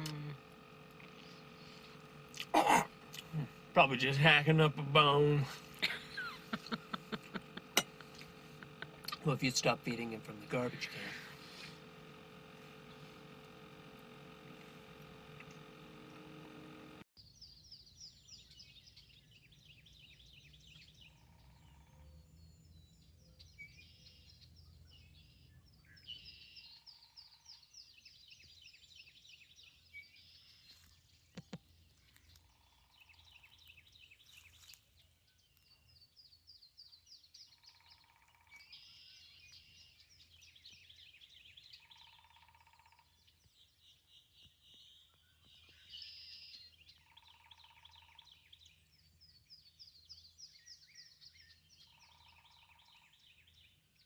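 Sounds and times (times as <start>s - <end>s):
high pulsing bird trills: 0.0s - 17.0s.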